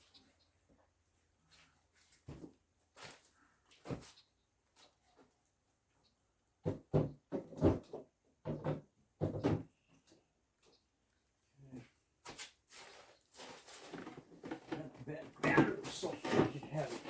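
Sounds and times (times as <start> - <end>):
sharp knocks and clunks: 6.6 - 9.8, 14.4 - 17.0
parts scraping and rustling: 12.3 - 17.0.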